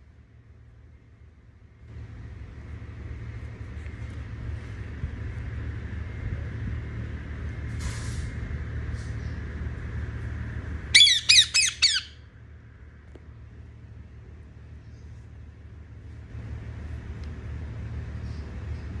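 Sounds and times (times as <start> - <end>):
steady low rumble: 0.0 - 19.0
parrot squawking harshly: 11.0 - 12.2.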